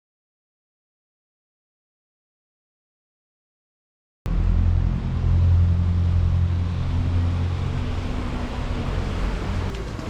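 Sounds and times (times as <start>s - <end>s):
boat engine droning: 4.3s - 10.0s.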